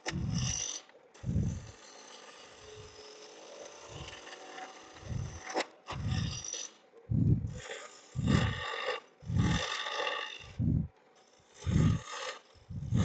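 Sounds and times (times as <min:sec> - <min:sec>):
turning tool scraping wood: 0:00.0 - 0:06.8, 0:07.5 - 0:10.6, 0:11.2 - 0:13.0
wood lathe spinning: 0:00.0 - 0:06.8, 0:07.4 - 0:10.6, 0:11.2 - 0:13.0.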